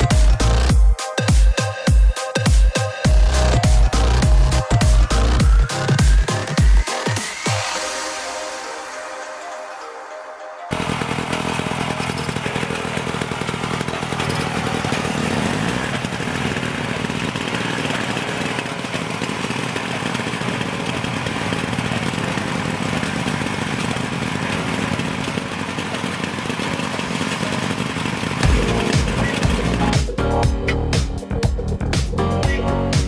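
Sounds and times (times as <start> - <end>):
motorcycle engine running: 0.0 - 7.8, 10.7 - 33.0.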